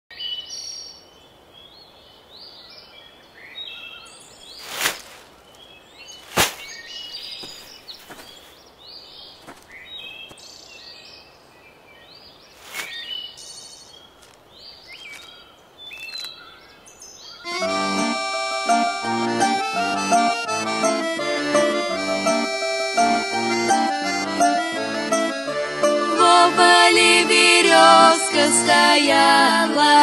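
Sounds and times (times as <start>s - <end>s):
small birds chirping: 0.2s - 17.6s
short sharp noises: 4.6s - 5.3s, 6.2s - 6.8s, 12.6s - 13.2s.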